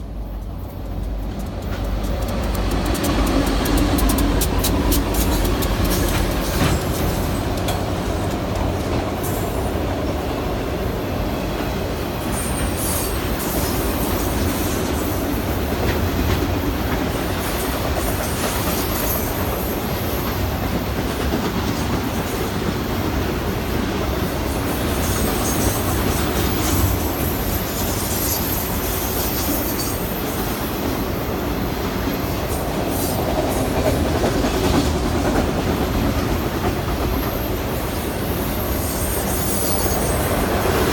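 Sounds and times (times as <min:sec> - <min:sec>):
wheels clicking on track: 0:00.0 - 0:09.8
train rumbling past: 0:00.0 - 0:40.9.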